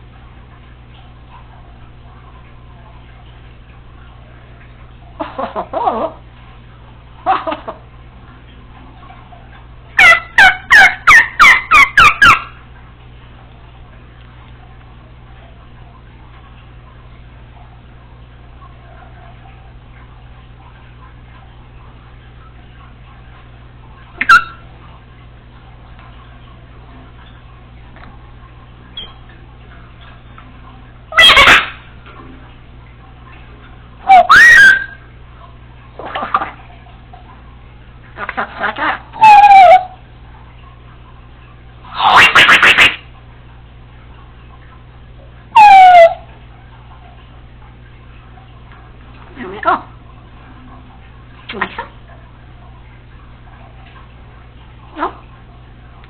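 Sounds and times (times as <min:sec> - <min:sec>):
parrot loud shrill calls: 0:10.0 - 0:12.5, 0:24.2 - 0:24.6, 0:31.2 - 0:31.8, 0:34.1 - 0:35.0, 0:39.2 - 0:40.0, 0:45.6 - 0:46.2.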